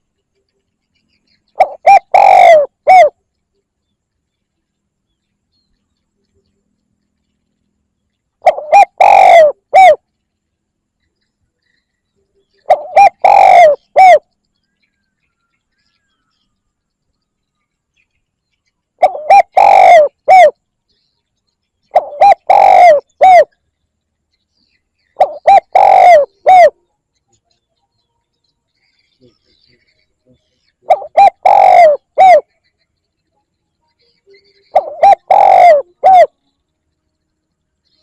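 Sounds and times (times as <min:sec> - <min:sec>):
dove cooing: 0:01.6 - 0:03.2, 0:08.4 - 0:10.0, 0:12.6 - 0:14.3, 0:19.0 - 0:20.6, 0:21.9 - 0:23.5, 0:25.2 - 0:26.8, 0:30.8 - 0:32.6, 0:34.6 - 0:36.4.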